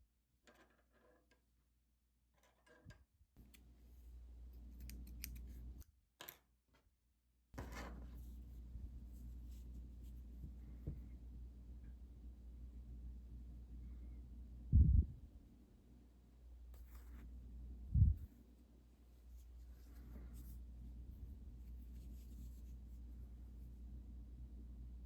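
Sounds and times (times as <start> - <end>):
faint low hum: 7.6 - 25.0.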